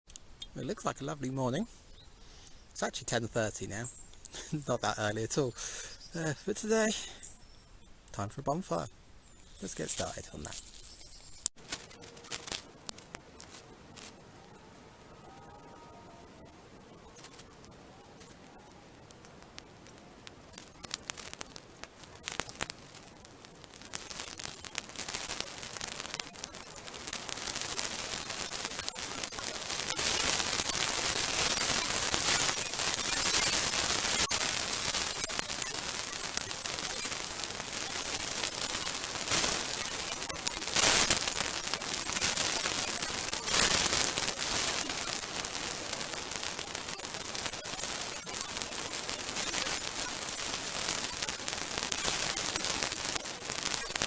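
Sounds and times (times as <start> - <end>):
bonfire crackling and hissing: 0.2 - 7.3, 9.1 - 54.0
loud fire snaps: 11.5 - 54.0.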